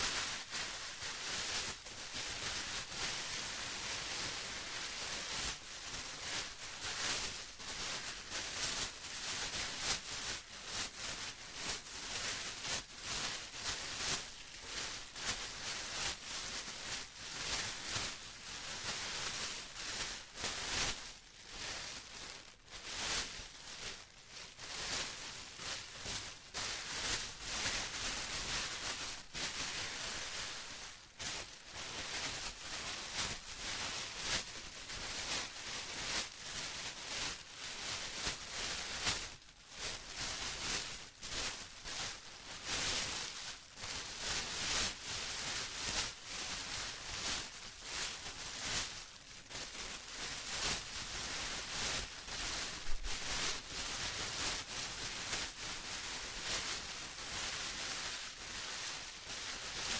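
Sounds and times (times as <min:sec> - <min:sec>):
plastic crinkling: 0:20.8 - 0:36.3, 0:45.4 - 0:59.9.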